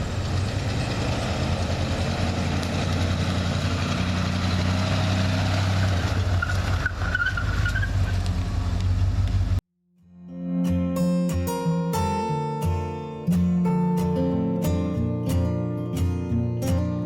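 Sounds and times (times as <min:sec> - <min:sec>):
car engine running: 0:00.0 - 0:07.1.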